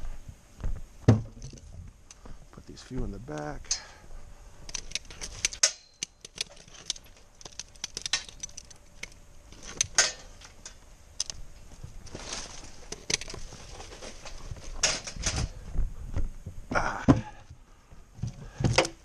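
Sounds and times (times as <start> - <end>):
firewood pieces knocking together: 1.0 - 1.7, 4.7 - 11.4, 12.0 - 15.5.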